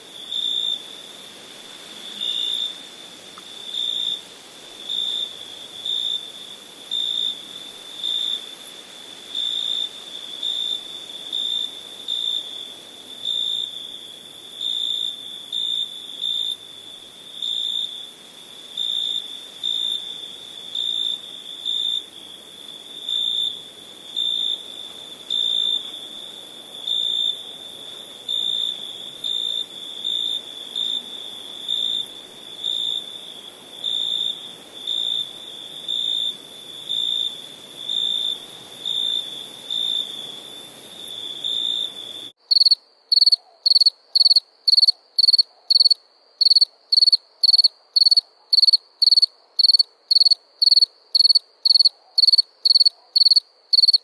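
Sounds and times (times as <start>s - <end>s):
faint steady hiss: 0.0s - 43.2s
crickets trilling: 0.0s - 54.0s.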